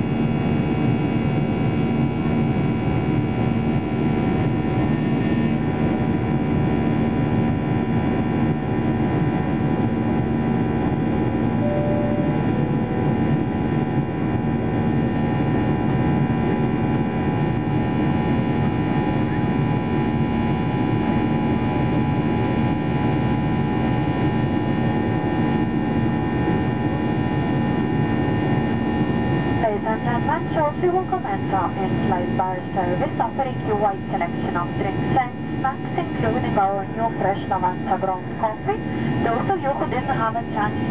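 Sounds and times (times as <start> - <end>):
airplane cabin noise: 9.1 - 18.1, 29.3 - 40.9.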